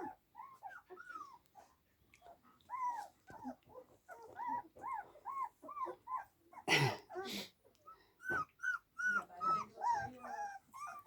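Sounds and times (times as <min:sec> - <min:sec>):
puppies whimpering: 0:02.3 - 0:06.4, 0:08.2 - 0:11.0.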